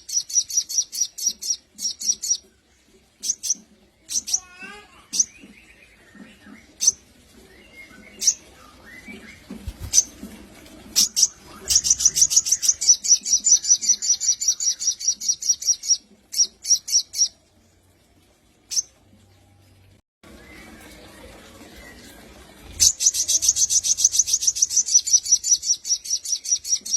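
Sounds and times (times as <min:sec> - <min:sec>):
sunbird singing: 0:22.8 - 0:26.9.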